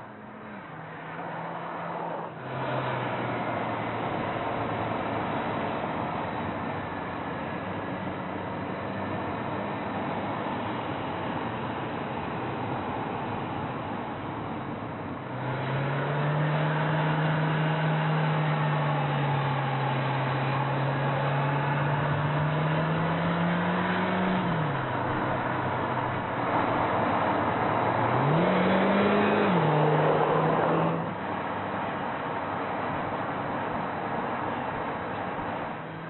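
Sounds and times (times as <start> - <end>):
road noise: 0.0 - 36.0
car engine revving: 15.3 - 31.2.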